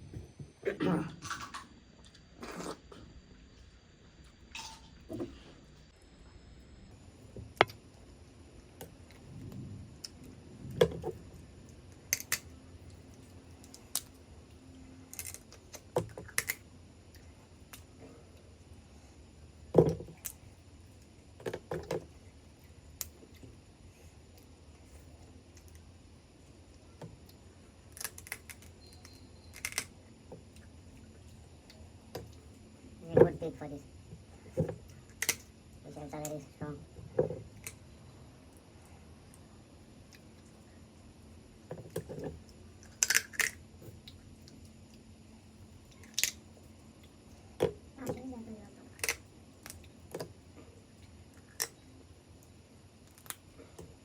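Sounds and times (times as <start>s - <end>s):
crab shell cracking: 27.9s - 28.8s, 42.8s - 43.6s, 46.0s - 46.4s.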